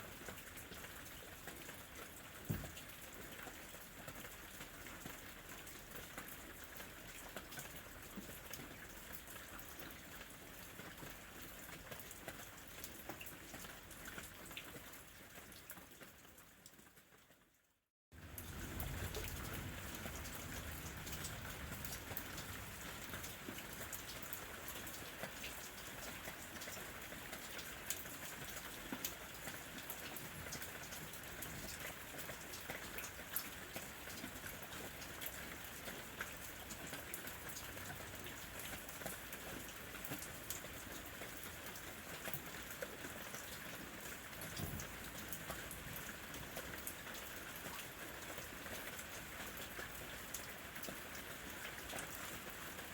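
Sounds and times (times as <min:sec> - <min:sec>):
rain falling: 0:00.0 - 0:17.3, 0:18.2 - 0:52.9
raindrops ticking nearby: 0:00.0 - 0:17.6, 0:18.2 - 0:52.9
soft low thump: 0:02.5 - 0:02.9.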